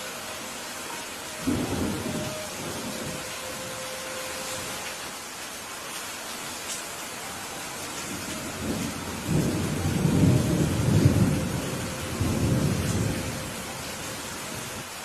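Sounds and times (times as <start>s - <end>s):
steady rain: 0.0s - 15.0s
thunder rumbling: 1.4s - 3.8s, 8.0s - 14.9s.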